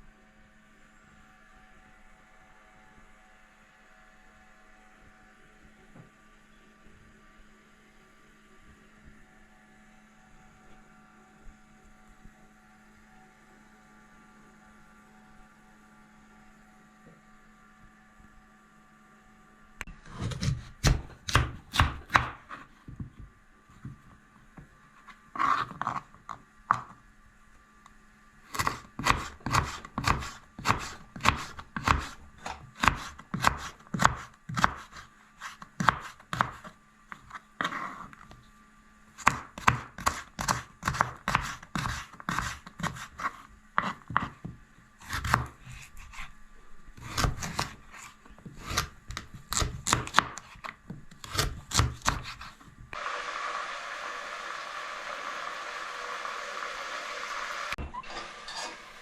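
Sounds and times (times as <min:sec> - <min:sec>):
knife chopping on cutting board: 0:20.1 - 0:22.5, 0:28.5 - 0:36.7, 0:39.2 - 0:46.2, 0:47.0 - 0:47.8, 0:48.5 - 0:50.5, 0:51.2 - 0:52.5.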